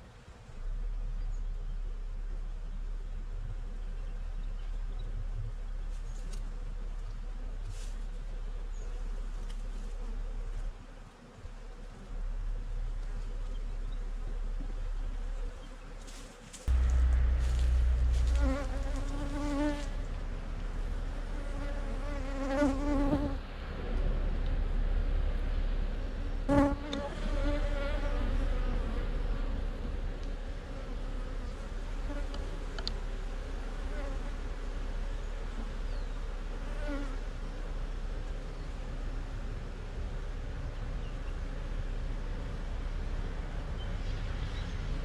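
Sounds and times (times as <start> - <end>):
honeybees buzzing: 8.5 - 23.4.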